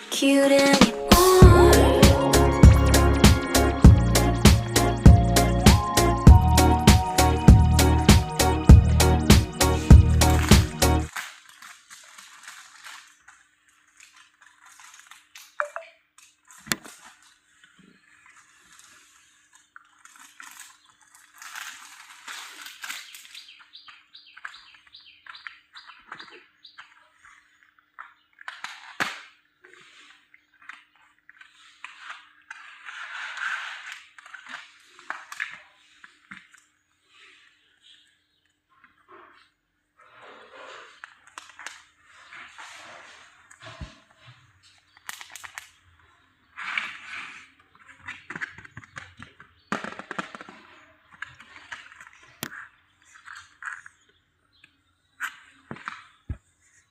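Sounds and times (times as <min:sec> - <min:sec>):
music with heavy beat: 0:00.6 - 0:11.1
plastic packaging crinkling: 0:11.1 - 0:24.7.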